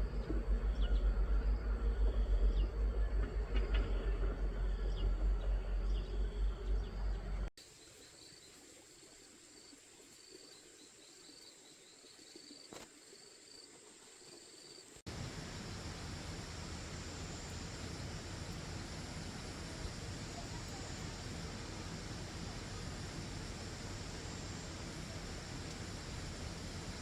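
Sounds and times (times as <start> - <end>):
loud low rumbling: 0.0 - 7.5, 15.1 - 27.0
insects chirping: 0.0 - 27.0.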